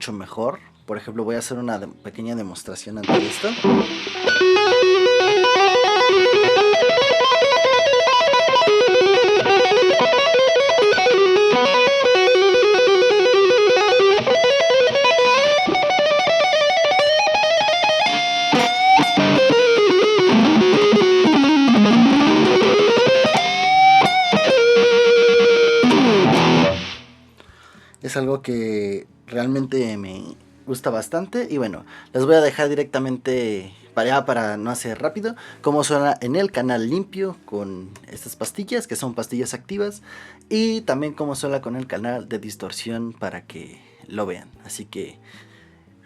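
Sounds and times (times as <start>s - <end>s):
electric guitar fast runs: 3.0s - 27.1s
guitar high squeals: 3.0s - 27.2s.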